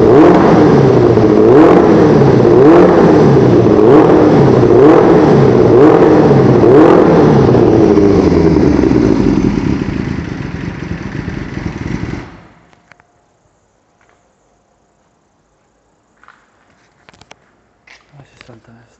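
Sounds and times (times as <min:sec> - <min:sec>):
motorcycle engine revving: 0:00.0 - 0:12.8.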